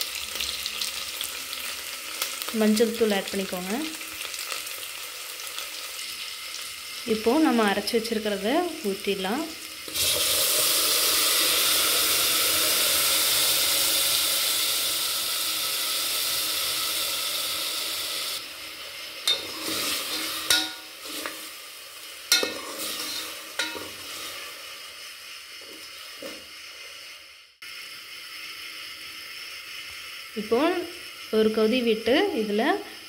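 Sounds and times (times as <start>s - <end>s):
paste sizzling in hot oil: 0.0s - 33.0s
metal ladle knocking against pot: 20.5s - 20.9s.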